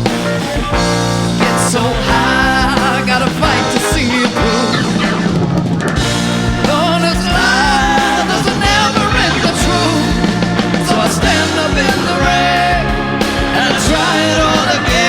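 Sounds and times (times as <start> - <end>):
wavering melody line: 0.0 - 5.5
bass guitar: 0.0 - 15.0
electric guitar: 0.0 - 15.0
rock band playing loudly: 0.0 - 15.0
steady drum beat: 0.0 - 15.0.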